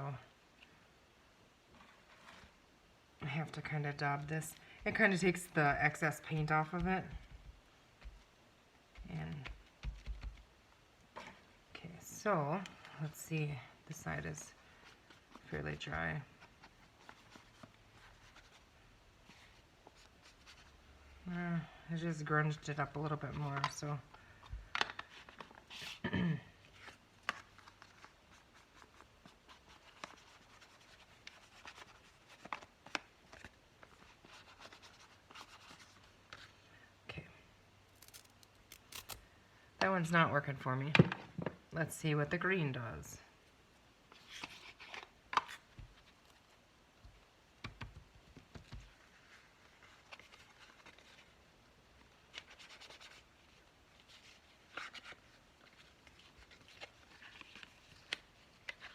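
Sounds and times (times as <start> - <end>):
paper and craft supplies handled: 1.7 - 2.6, 13.9 - 20.8, 22.8 - 36.6, 37.9 - 39.2, 44.1 - 46.6, 52.0 - 58.9.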